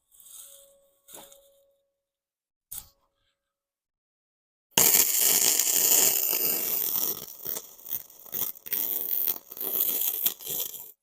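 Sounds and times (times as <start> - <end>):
welding arc crackling: 4.8 - 11.0.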